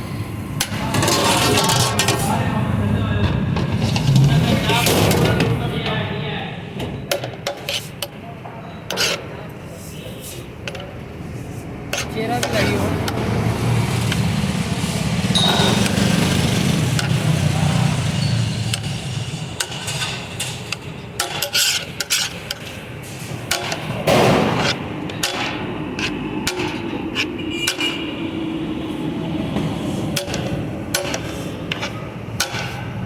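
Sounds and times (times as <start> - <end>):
engine-like hum: 11.7 - 21.4, 22.3 - 33.0
sharp knocks and clatter: 23.5 - 28.0, 29.5 - 32.9.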